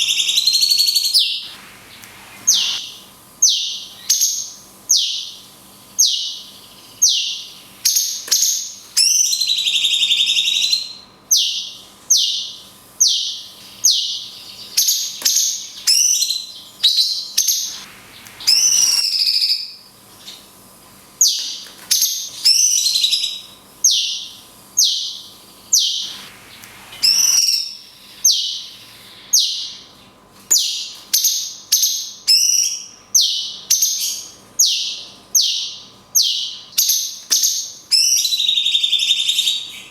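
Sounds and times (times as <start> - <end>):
bird singing high sweeping notes: 0.0 - 5.4, 6.0 - 20.3, 22.4 - 29.9.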